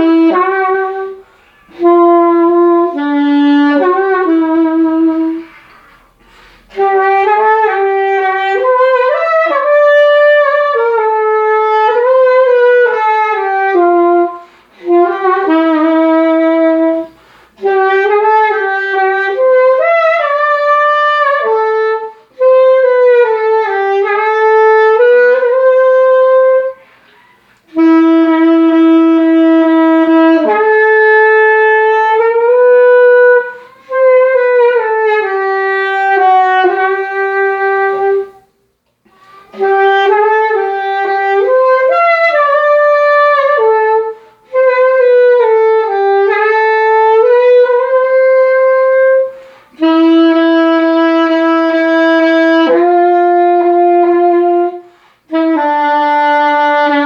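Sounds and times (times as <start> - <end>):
solo saxophone hymn melody: 0.0 - 57.0.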